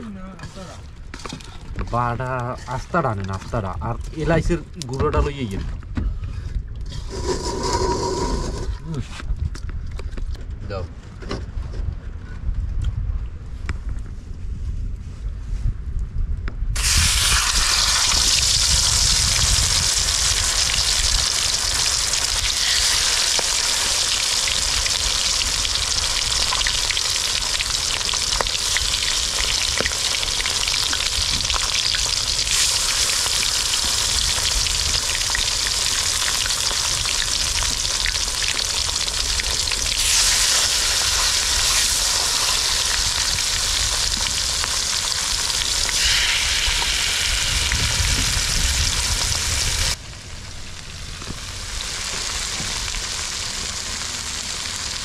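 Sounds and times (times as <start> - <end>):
food sizzling in hot oil: 16.8 - 50.0, 51.0 - 55.0.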